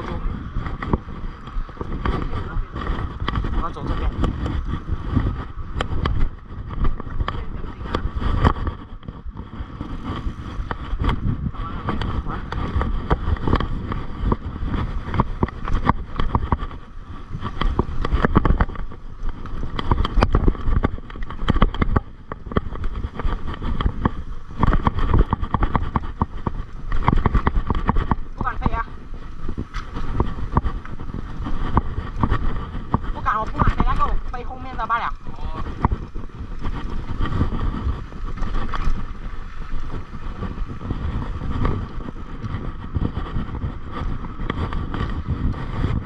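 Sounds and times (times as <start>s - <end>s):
bike knocks and rattles: 0.0s - 46.0s
mountain bike rumble on dirt trail: 0.0s - 46.0s.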